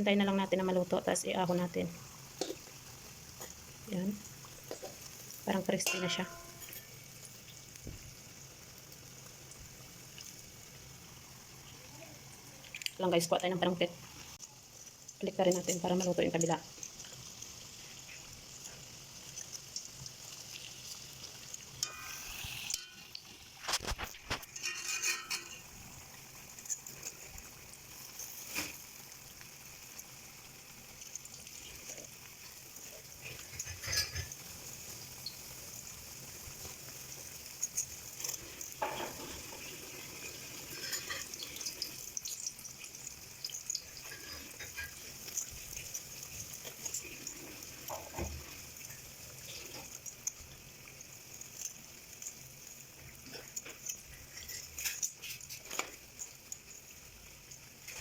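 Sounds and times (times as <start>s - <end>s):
rice cakes sizzling in oil: 0.0s - 58.0s
utensil knocking against pan: 5.8s - 6.6s.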